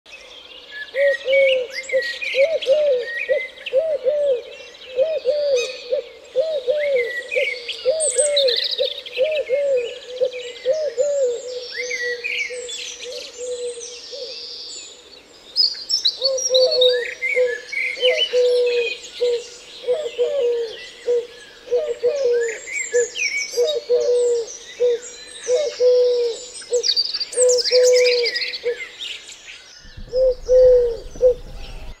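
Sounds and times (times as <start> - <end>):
small birds chirping: 10.0 - 32.0.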